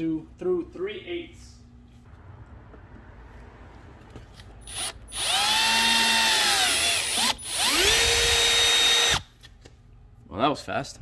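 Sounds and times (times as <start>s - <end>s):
power drill whining: 4.6s - 9.3s.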